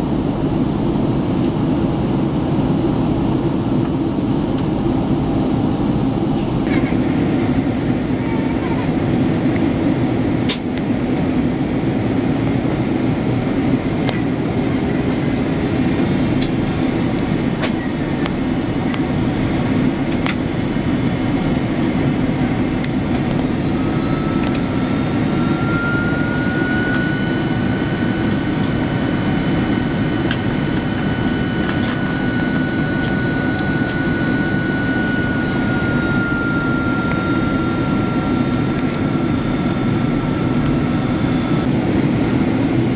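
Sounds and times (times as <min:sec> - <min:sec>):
aircraft cabin engine rumble: 0:00.0 - 0:42.9
thin high whine: 0:20.9 - 0:41.7.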